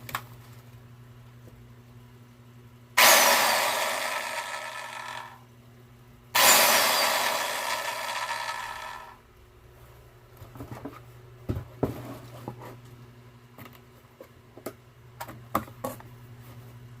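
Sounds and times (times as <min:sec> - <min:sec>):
low steady hum: 0:00.0 - 0:17.0
circular saw motor winding down: 0:03.0 - 0:05.4, 0:06.4 - 0:09.2.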